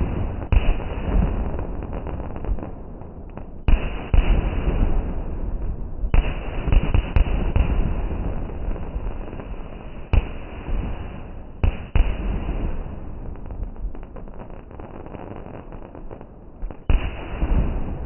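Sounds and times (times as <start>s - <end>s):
fireworks bangs: 0.0s - 18.0s
rumbling crackle: 0.0s - 18.0s.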